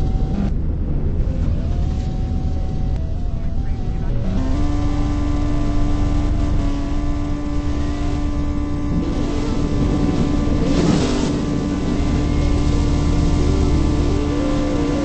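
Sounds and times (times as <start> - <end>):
car engine running at held revs: 0.0 - 15.0.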